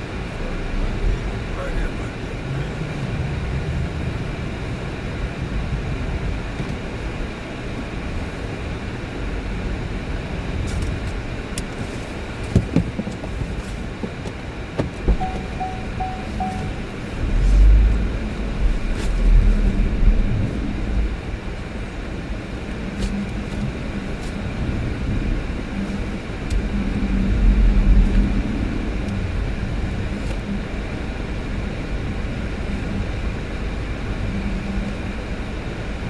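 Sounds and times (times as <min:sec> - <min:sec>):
engine and road rumble: 0:00.0 - 0:36.0
heavy low thuds: 0:14.8 - 0:20.5
quick beeps: 0:15.2 - 0:16.9.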